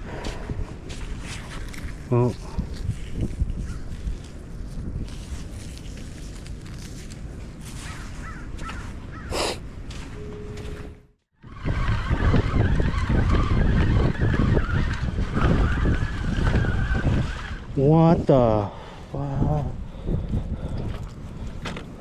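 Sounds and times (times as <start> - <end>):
wind buffeting microphone: 0.0 - 10.0, 11.4 - 22.0.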